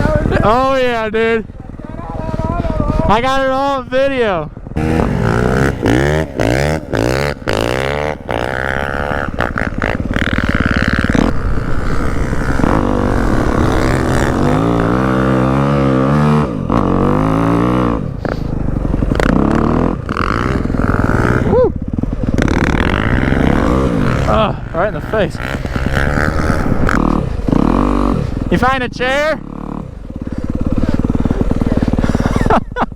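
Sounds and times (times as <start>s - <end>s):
dirt bike engine revving: 0.0s - 32.9s.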